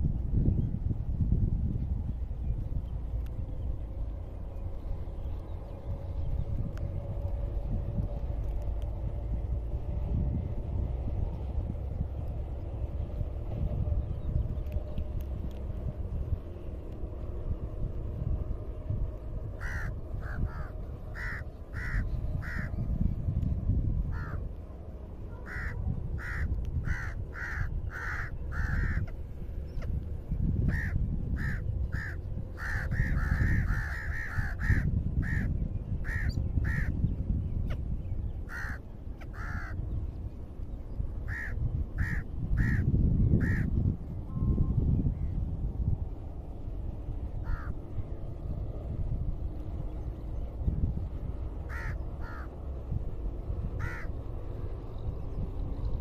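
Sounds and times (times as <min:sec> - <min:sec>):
wind rumbling on microphone: 0:00.0 - 0:56.0
bird calling: 0:19.6 - 0:22.8, 0:25.3 - 0:30.0, 0:30.6 - 0:37.0, 0:38.4 - 0:39.8.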